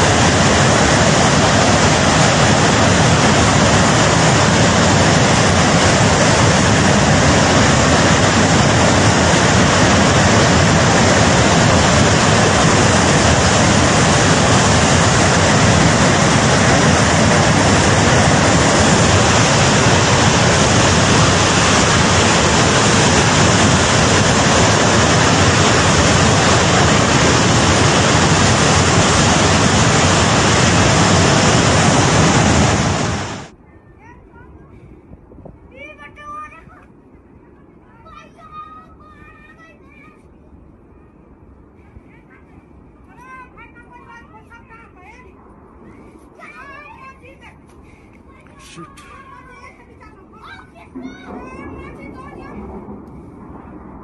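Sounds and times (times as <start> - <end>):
flood torrent rushing: 0.0 - 33.6, 47.8 - 54.0.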